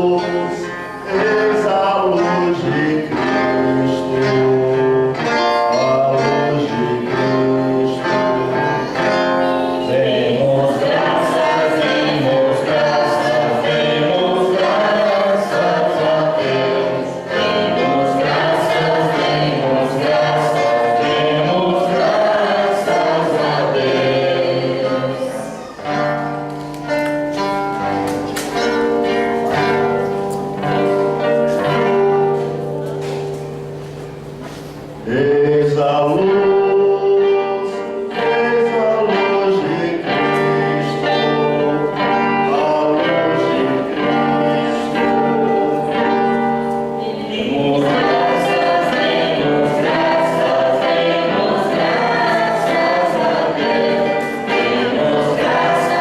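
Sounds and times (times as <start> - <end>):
choir singing a hymn: 0.0 - 26.4, 27.3 - 56.0
instrumental accompaniment: 0.0 - 56.0.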